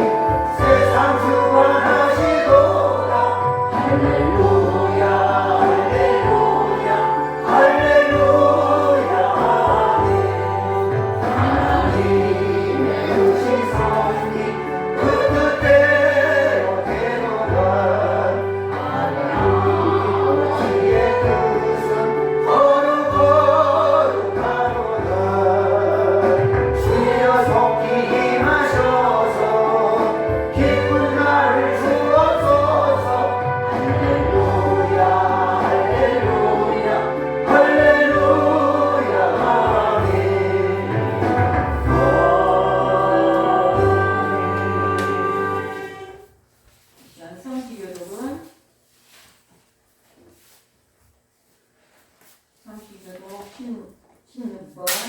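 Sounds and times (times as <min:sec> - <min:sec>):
congregation singing a hymn: 0:00.0 - 0:46.3.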